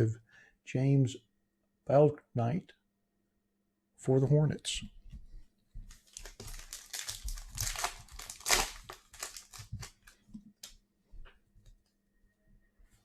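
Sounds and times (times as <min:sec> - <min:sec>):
plastic wrapper crinkling: 0:05.9 - 0:10.8.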